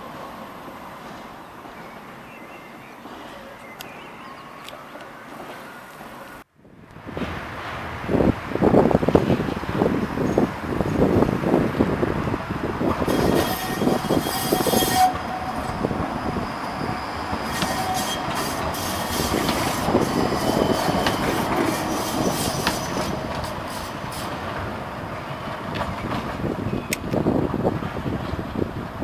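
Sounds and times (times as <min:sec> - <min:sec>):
tram running on rails: 0:00.0 - 0:29.0
tram wheels squealing: 0:09.3 - 0:28.6
wheels clicking over rail joints: 0:12.7 - 0:28.8.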